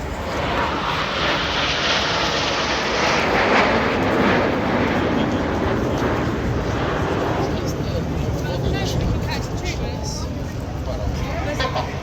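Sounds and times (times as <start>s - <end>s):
jets flying past: 0.0s - 12.0s.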